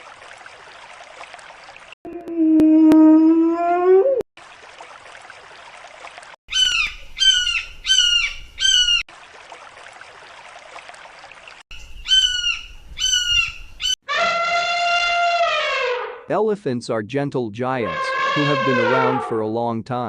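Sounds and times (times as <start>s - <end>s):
bird calling: 6.5s - 9.0s, 11.7s - 15.8s, 17.9s - 19.3s.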